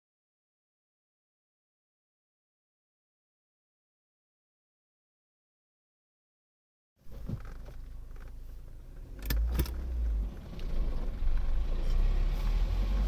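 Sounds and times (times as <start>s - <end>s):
moving car rumble: 7.0s - 13.0s.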